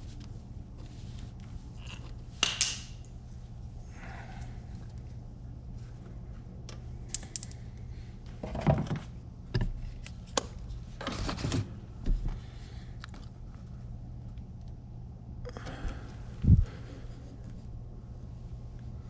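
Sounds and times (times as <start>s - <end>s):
clicks and rustles of hands: 0.0s - 3.2s, 4.4s - 8.4s
steady low hum: 0.0s - 19.0s.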